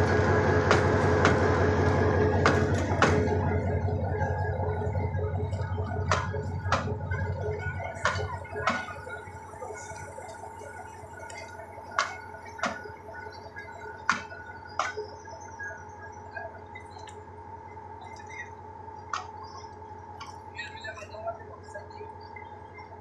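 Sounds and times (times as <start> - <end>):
train rumbling: 0.0 - 10.2.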